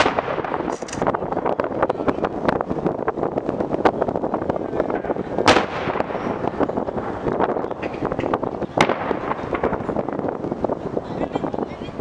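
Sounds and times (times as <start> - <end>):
loud firework bang: 0.0 - 1.1, 4.9 - 7.1, 7.7 - 10.1
fireworks popping and crackling: 0.0 - 12.0.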